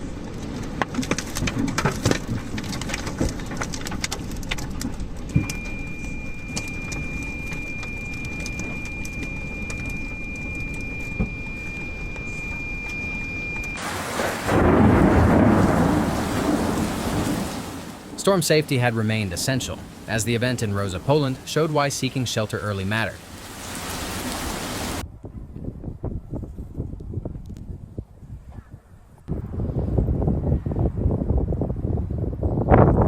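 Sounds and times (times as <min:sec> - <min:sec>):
rain pattering: 0:00.0 - 0:25.0
deep thunder rumble: 0:12.5 - 0:21.6
heavy rain: 0:13.8 - 0:25.0.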